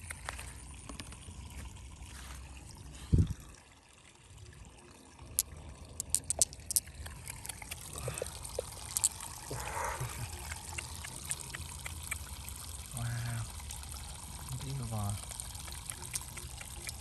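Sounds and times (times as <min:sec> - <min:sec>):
water trickling and pouring: 0:00.0 - 0:17.0
sharp clicks: 0:06.0 - 0:07.9, 0:15.6 - 0:17.0.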